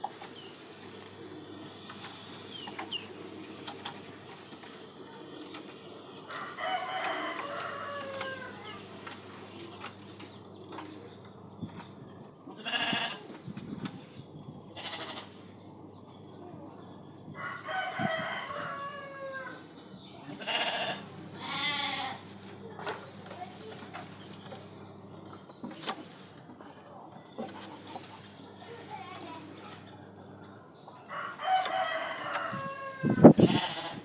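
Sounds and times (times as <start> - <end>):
rooster crowing: 6.3 - 8.8, 17.4 - 19.7, 31.1 - 34.0.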